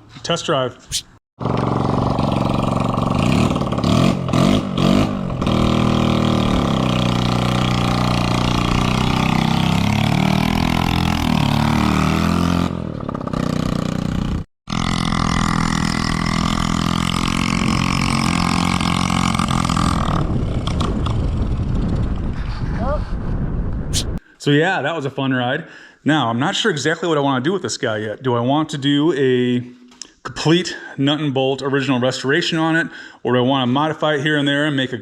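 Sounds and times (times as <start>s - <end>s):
motorcycle engine revving: 1.4s - 21.9s.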